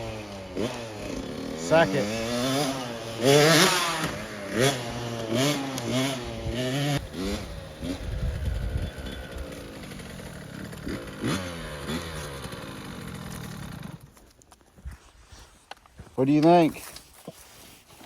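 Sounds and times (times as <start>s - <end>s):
dirt bike engine revving: 0.0s - 14.1s.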